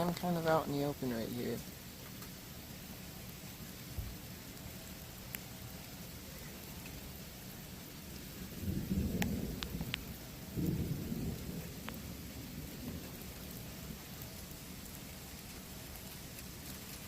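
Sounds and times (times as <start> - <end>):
rain hissing: 0.0 - 17.0
raindrop ticks: 0.0 - 17.0
thunder rumbling: 7.1 - 16.1.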